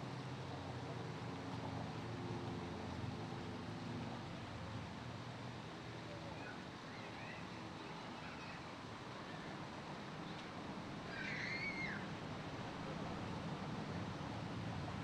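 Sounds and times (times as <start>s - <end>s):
short wavering bird calls: 6.4s - 8.6s, 11.1s - 12.1s.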